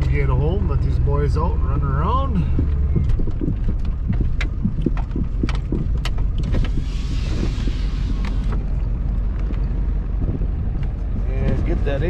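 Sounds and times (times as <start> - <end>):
truck engine and road rumble: 0.0 - 12.0
cab rattles and knocks: 2.1 - 12.0
hiss: 6.7 - 8.5.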